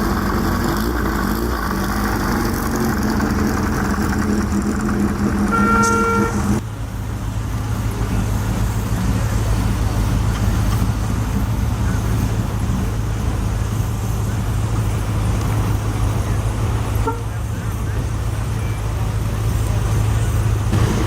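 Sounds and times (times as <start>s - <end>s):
vehicle engine droning: 0.0s - 21.0s
car horn: 3.6s - 6.6s, 16.8s - 19.1s.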